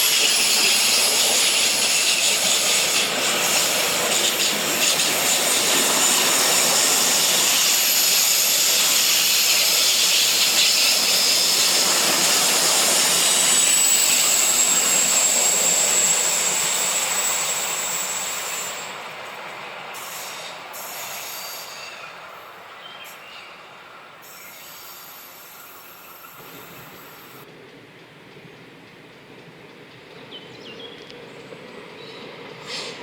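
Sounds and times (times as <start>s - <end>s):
train wheels rushing on rails: 0.0s - 33.0s
high-pitched wheel squeal: 4.4s - 19.0s.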